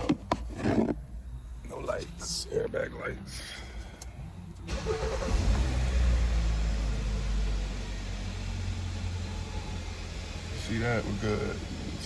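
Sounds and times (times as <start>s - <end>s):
car engine revving and idling: 4.2s - 12.0s.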